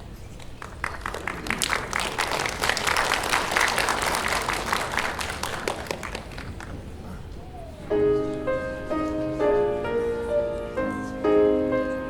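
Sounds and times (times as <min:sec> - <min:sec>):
audience applauding: 0:00.4 - 0:07.2.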